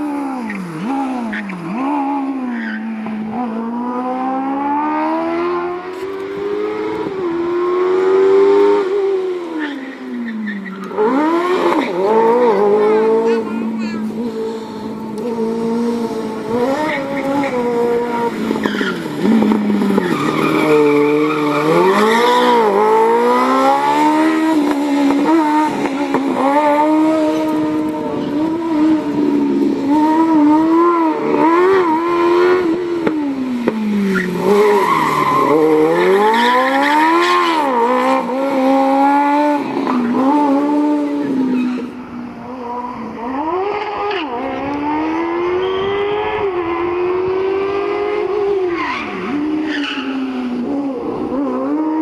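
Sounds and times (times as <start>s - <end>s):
motorcycle engine revving hard: 15.2s - 41.8s, 42.6s - 52.0s.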